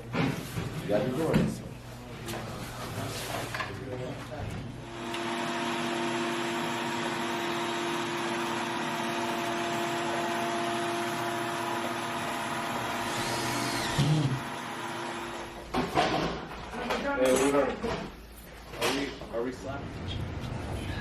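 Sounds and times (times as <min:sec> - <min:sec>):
electric motor whining: 0:05.0 - 0:15.4.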